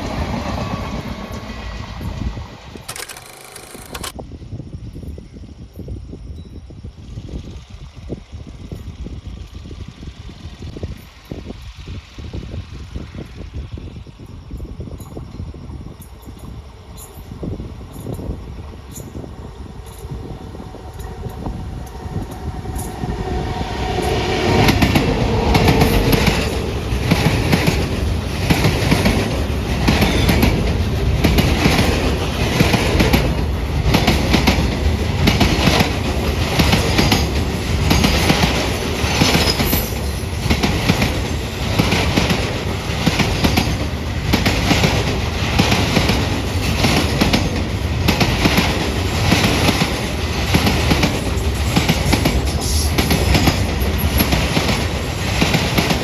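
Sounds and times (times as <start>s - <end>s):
train passing at high speed: 0.0s - 6.2s, 6.8s - 56.0s
wheels clattering over rail joints: 14.5s - 56.0s.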